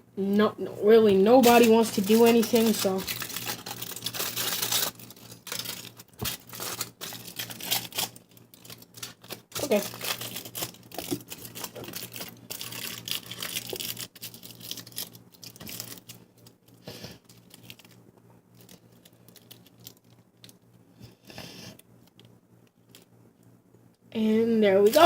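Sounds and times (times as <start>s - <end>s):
aluminium foil crinkling: 1.3s - 20.7s, 24.8s - 25.0s.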